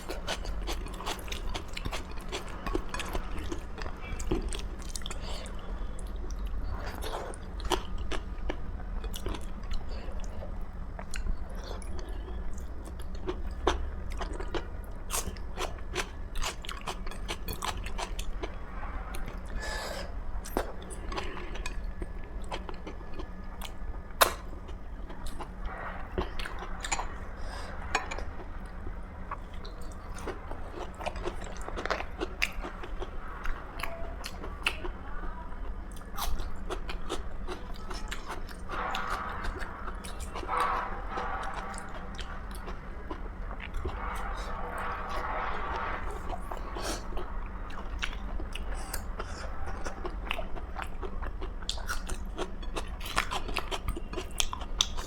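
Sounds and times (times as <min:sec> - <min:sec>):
person chewing food: 0:00.0 - 0:35.0, 0:35.6 - 0:55.0.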